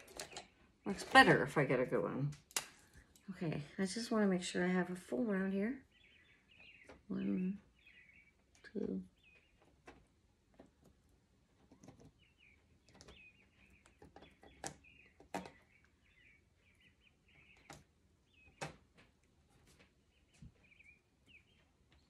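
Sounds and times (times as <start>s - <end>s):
small bird chirping: 5.1s - 22.0s.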